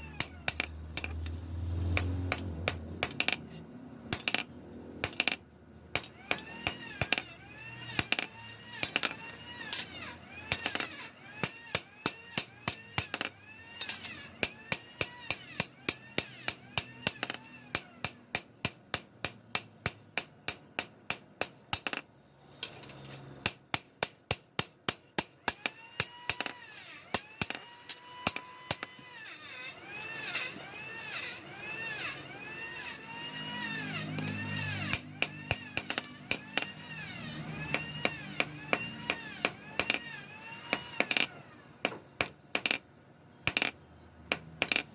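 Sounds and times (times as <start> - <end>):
sharp hand tool strikes: 34.0 - 36.8, 37.6 - 40.1.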